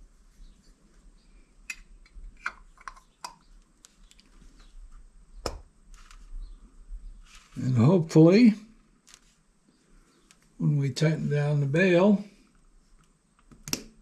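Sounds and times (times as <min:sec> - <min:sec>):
metal parts clicking and tapping: 0:01.7 - 0:04.3.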